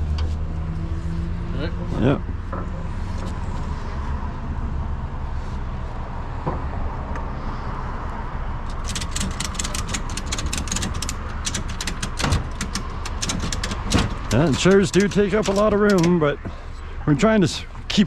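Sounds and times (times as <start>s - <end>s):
vehicle engine idling: 8.6s - 18.0s
ratchet strap clicking: 8.7s - 16.1s.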